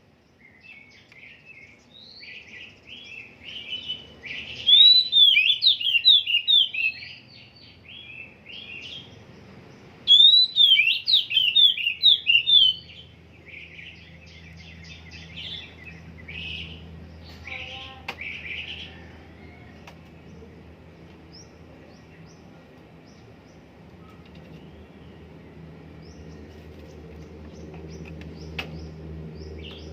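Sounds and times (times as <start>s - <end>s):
soft bird twittering: 0.3s - 20.4s, 21.3s - 29.9s
bird singing whistled phrases: 2.1s - 9.0s, 10.1s - 13.7s.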